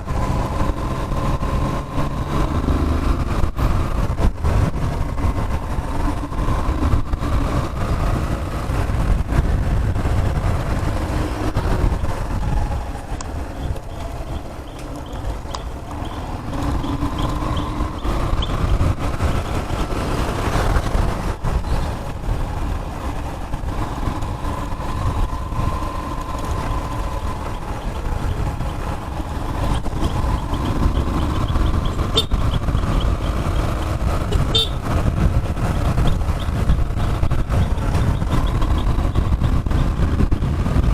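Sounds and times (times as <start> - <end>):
wind rumble on microphone: 0.0 - 40.9
small motorcycle engine running: 13.6 - 21.2, 24.4 - 40.6.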